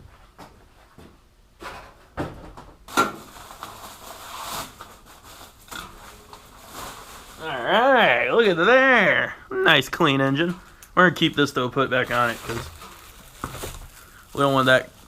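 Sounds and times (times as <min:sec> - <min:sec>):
rubbing and rustling: 0:03.2 - 0:07.5, 0:11.3 - 0:15.0.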